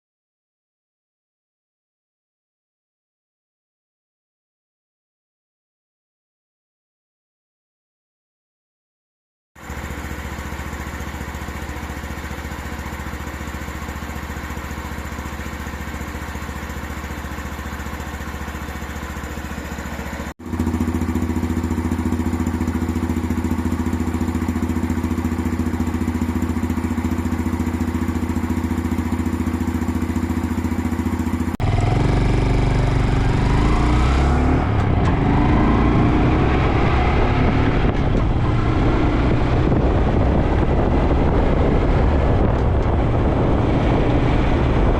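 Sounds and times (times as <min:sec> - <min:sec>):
motorcycle engine idling: 0:09.6 - 0:35.8
motorcycle engine revving through gears: 0:09.6 - 0:44.9
wind on microphone: 0:36.7 - 0:44.9.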